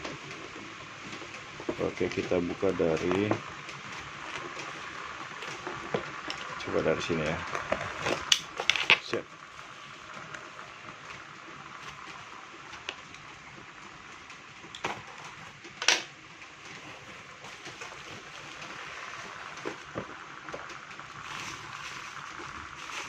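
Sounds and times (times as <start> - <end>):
steady hiss: 0.0 - 23.0
plastic parcel crinkling: 16.7 - 23.0.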